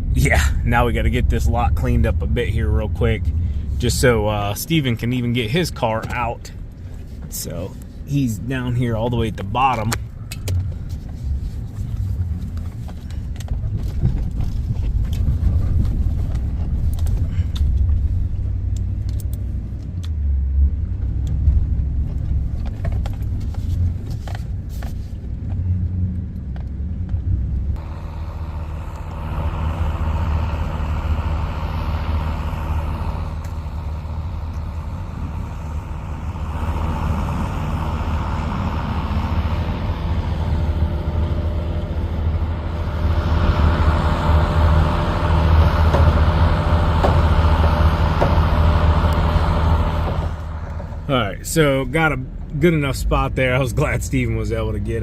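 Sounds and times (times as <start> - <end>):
snowplow engine running under load: 0.0 - 24.0, 27.2 - 55.0.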